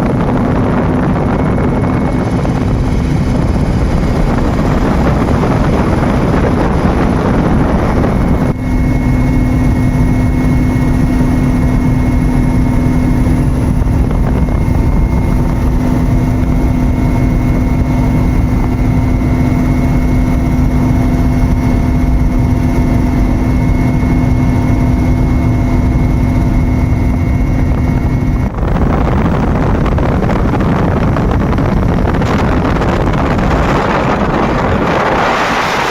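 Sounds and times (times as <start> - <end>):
aircraft engine and rotor drone: 0.0 - 35.9
rushing noise: 28.2 - 35.9.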